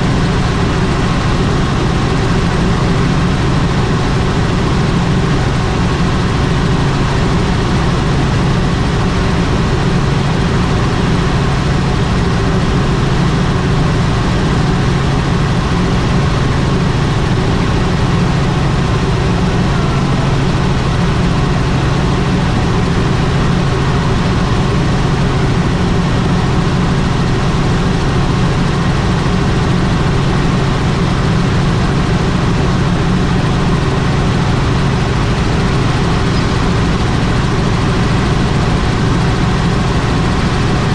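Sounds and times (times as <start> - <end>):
helicopter engine and rotors: 0.0 - 40.9.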